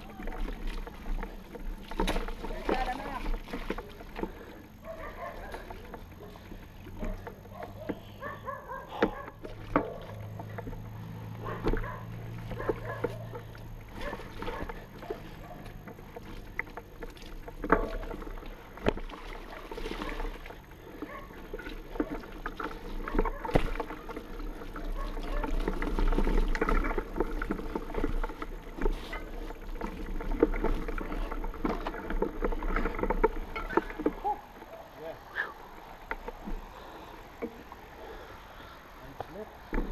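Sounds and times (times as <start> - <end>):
bike frame and chain rattling: 0.0 - 35.2
knocks over stones: 8.9 - 34.6, 39.2 - 39.9.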